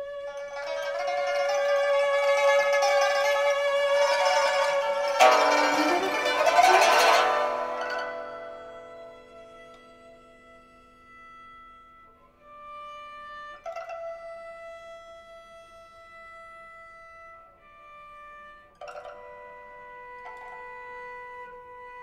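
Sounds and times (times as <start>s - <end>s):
pipas and cello playing: 0.0s - 10.8s, 17.7s - 22.0s
sharp plucked string attacks: 5.2s - 8.2s.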